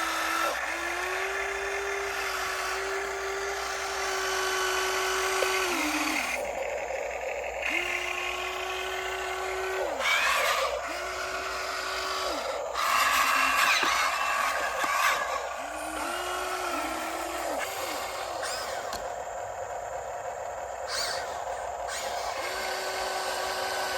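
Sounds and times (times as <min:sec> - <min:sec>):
hydraulic pump whine: 0:00.0 - 0:23.9
constant hiss: 0:10.6 - 0:23.9.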